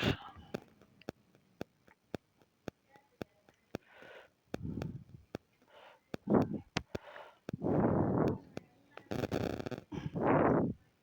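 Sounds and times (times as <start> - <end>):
soft breaths: 2.8 - 11.0.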